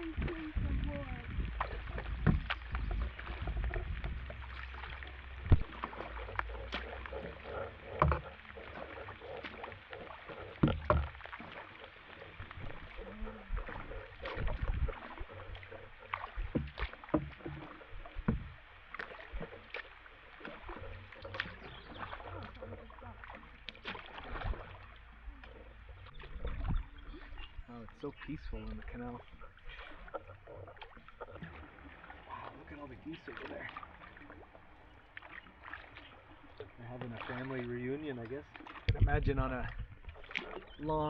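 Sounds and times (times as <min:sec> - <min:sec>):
steady low rumble: 0:00.0 - 0:08.4
paddle strokes splashing: 0:00.0 - 0:41.0
sharp knocks: 0:10.6 - 0:11.2.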